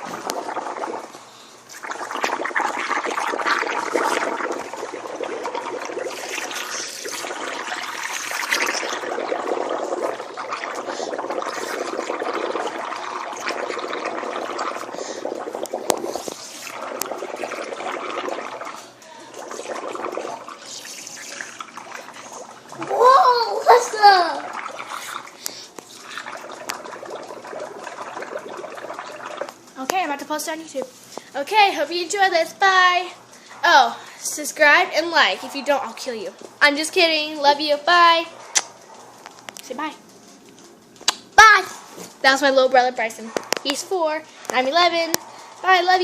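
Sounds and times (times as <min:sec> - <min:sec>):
bubbling through straw in water: 0:00.0 - 0:30.3.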